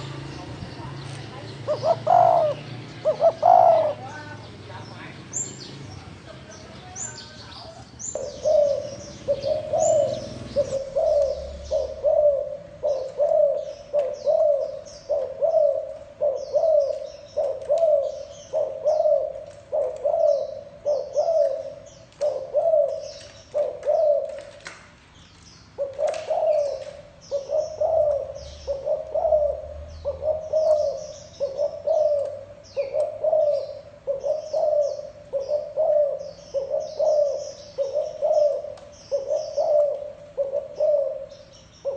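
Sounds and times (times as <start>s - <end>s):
dove cooing: 0.0s - 4.4s, 7.2s - 24.7s, 25.7s - 41.9s
small birds chirping faintly: 0.0s - 41.9s.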